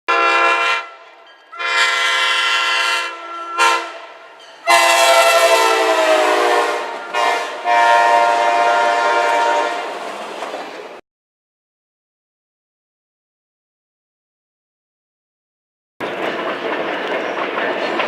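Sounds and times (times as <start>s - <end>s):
locomotive air horn blasts: 0.1s - 10.0s.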